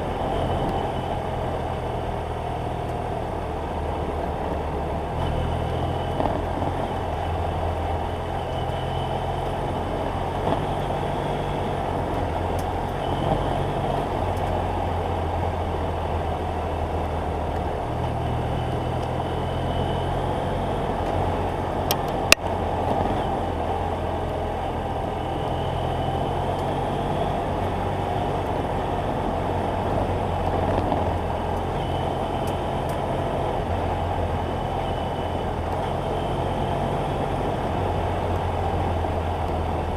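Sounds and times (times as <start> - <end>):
road rush: 0.0 - 39.9
wind noise: 20.8 - 24.0, 26.7 - 34.6.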